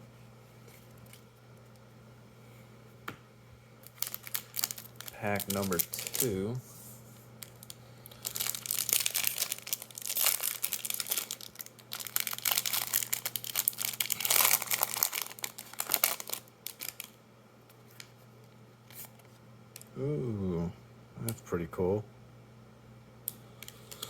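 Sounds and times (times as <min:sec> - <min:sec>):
foil wrapper crinkling: 0:03.8 - 0:06.6, 0:07.4 - 0:19.9.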